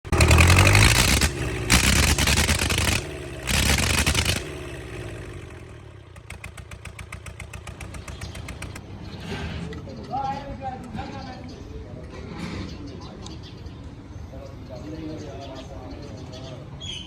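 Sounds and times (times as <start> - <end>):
tractor engine revving and idling: 0.0 - 8.9.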